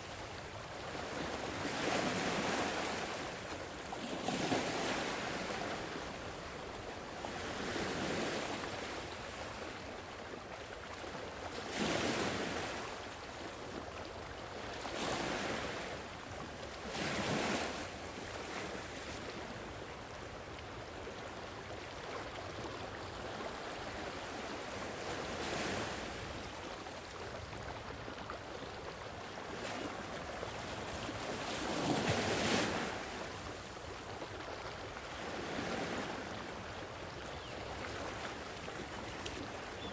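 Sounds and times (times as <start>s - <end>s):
sea waves breaking on shore: 0.0s - 9.8s, 23.1s - 39.9s.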